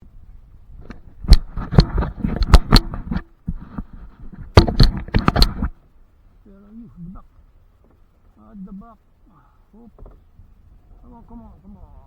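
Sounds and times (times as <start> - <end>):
knocks and thumps on microphone: 0.8 - 5.8.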